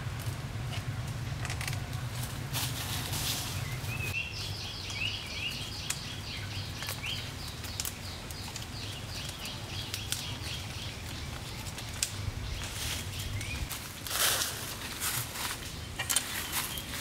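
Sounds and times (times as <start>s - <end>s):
bamboo clicking and knocking: 0.0s - 2.8s, 4.8s - 13.9s, 15.5s - 17.0s
bird chirping: 3.4s - 13.7s.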